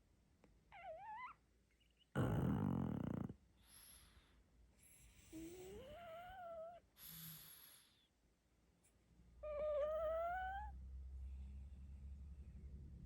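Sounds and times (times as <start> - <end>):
puppy whimpering: 0.7 - 1.4, 9.4 - 10.8
dog snoring breath: 2.2 - 8.1.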